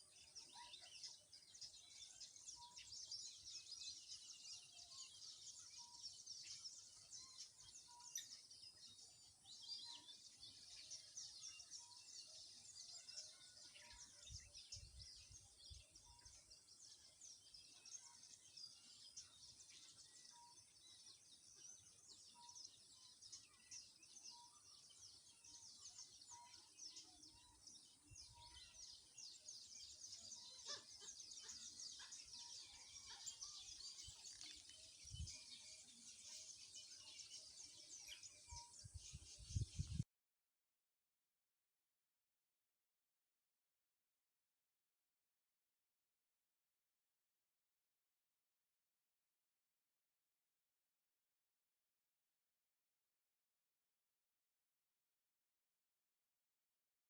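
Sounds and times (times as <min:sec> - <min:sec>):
birds chirping: 0:00.0 - 0:40.1.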